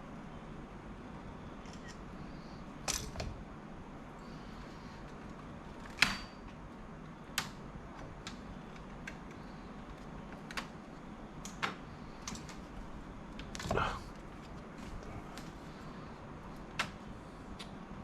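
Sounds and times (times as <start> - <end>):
small sharp clicks and taps: 7.3 - 10.8, 17.6 - 17.8.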